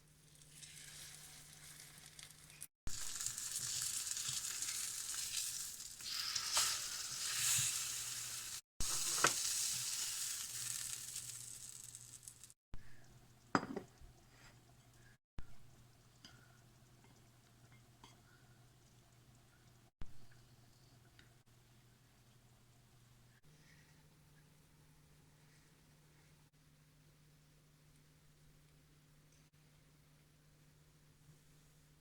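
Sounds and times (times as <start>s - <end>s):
pork chops sizzling in a pan: 0.3s - 12.5s.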